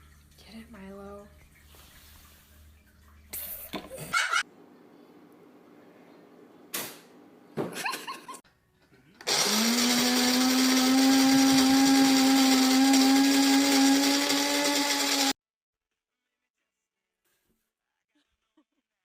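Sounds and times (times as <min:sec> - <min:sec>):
small electric motor whirring: 0:09.2 - 0:15.4.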